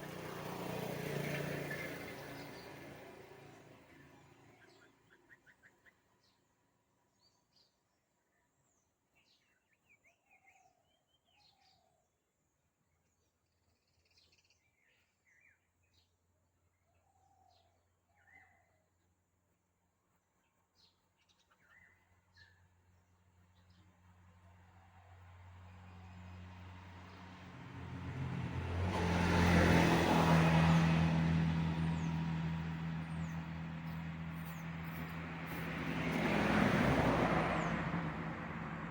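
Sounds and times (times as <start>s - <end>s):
vehicle engine humming: 0.0s - 4.4s, 25.9s - 38.9s
faint birdsong: 1.0s - 27.3s.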